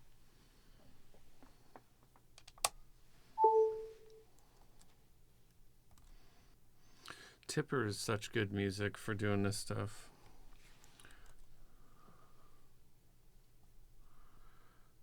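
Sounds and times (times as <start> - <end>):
keyboard typing: 3.4 - 4.0
two-note notification chime: 3.4 - 4.2.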